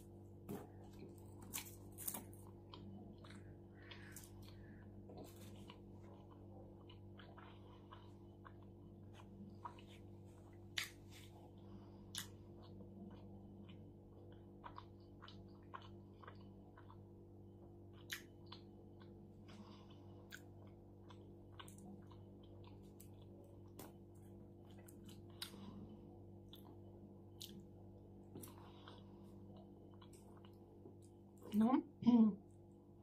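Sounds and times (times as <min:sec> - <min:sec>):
low hum: 0:00.0 - 0:33.0
close-up chewing: 0:00.8 - 0:27.7, 0:28.3 - 0:31.4.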